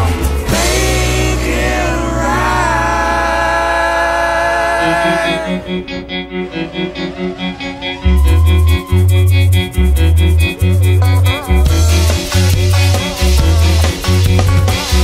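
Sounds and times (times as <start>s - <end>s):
sliding melody over low drone: 0.0s - 14.6s
heavy bass: 0.0s - 15.0s
pulsing rhythm: 0.0s - 15.0s.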